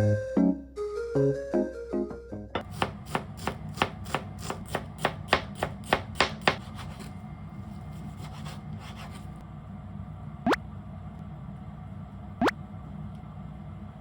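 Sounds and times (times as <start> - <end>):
knife chopping on cutting board: 2.6 - 7.1.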